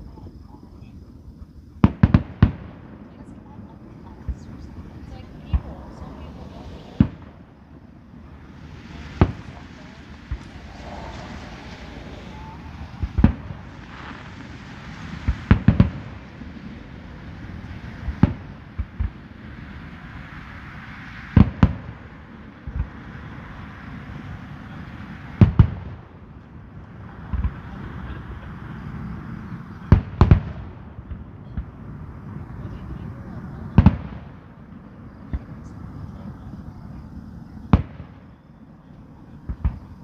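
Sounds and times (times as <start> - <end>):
low rumble after bangs: 1.8 - 29.0
fireworks bangs: 1.8 - 40.0.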